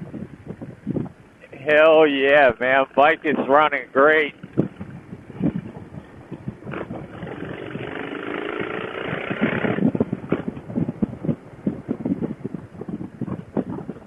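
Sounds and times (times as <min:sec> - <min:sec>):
wind buffeting microphone: 0:00.0 - 0:14.0
motorcycle engine accelerating: 0:01.7 - 0:14.0.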